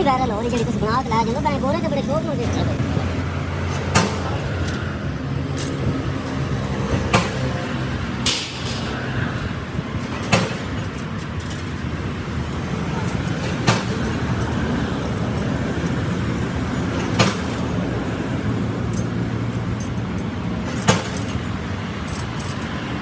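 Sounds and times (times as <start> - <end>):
sharp metallic clinks: 0.0 - 2.5, 5.6 - 6.5, 9.8 - 17.8, 18.7 - 22.8.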